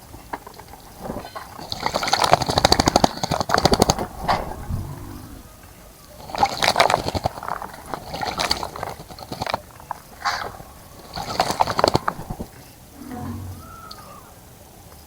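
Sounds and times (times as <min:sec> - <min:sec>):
bird splashing water: 0:01.1 - 0:12.8.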